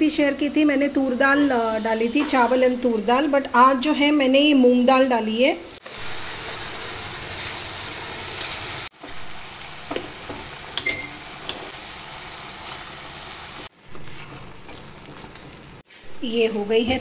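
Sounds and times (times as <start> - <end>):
masala sizzling in a pan: 0.0 - 15.9
metal spoon clinking on pan: 10.8 - 11.6.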